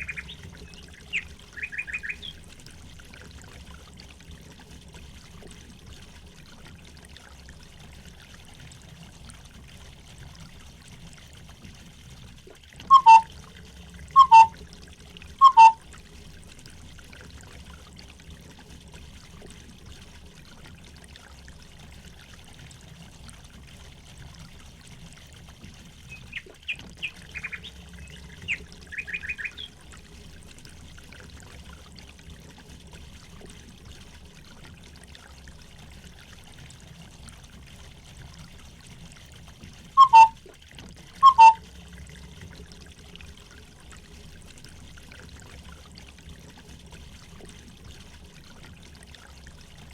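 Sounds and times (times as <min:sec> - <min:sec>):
trickling stream water: 0:00.0 - 0:49.9
high bird chirps: 0:12.9 - 0:13.2, 0:14.2 - 0:14.5, 0:15.4 - 0:15.8, 0:40.0 - 0:40.3, 0:41.2 - 0:41.6
loud short bird calls: 0:12.9 - 0:13.2, 0:14.2 - 0:14.5.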